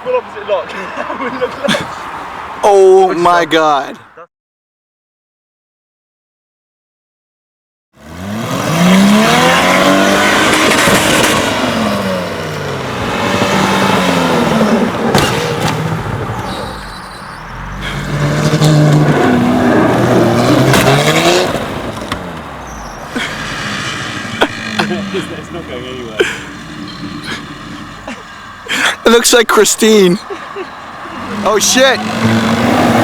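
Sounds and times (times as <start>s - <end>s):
car engine revving: 8.0s - 33.0s
sharp knocks: 15.1s - 15.8s.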